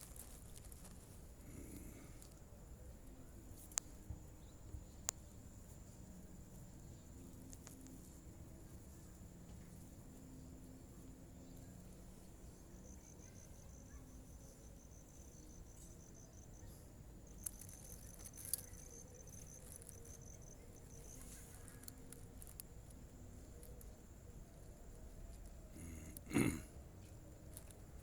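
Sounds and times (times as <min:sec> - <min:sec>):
faint clicks: 0:03.0 - 0:04.0, 0:17.3 - 0:26.4.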